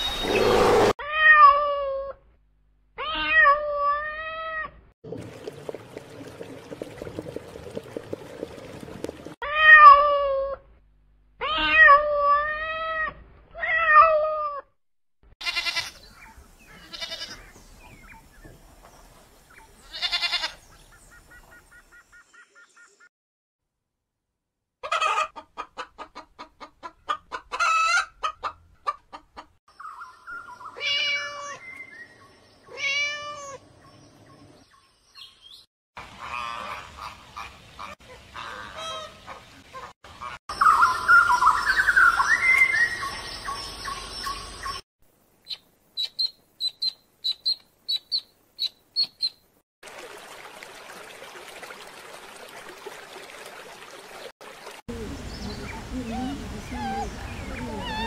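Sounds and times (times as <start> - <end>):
chickens clucking: 24.8 - 29.5
high bird chirps: 40.5 - 44.8, 45.4 - 49.4.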